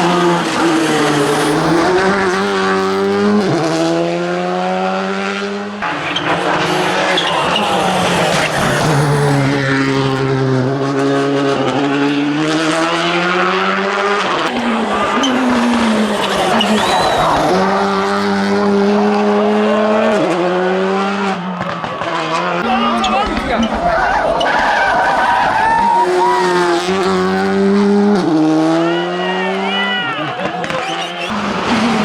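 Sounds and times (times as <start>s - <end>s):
rally car engine revving: 0.0s - 32.0s.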